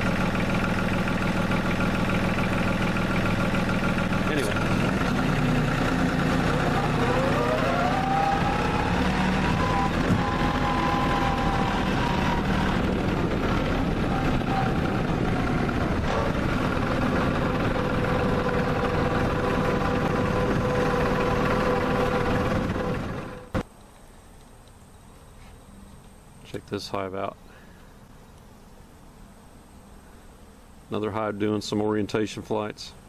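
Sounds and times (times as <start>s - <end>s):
tractor diesel engine running: 0.0s - 23.6s
engine whine: 0.0s - 23.7s.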